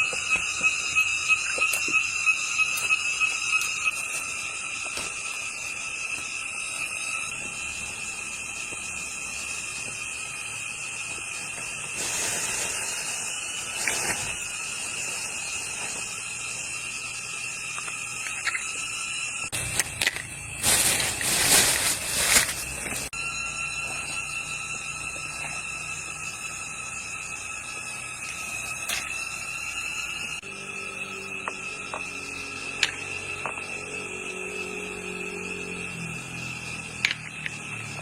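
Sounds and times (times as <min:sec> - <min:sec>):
high-pitched insect drone: 0:00.0 - 0:38.0.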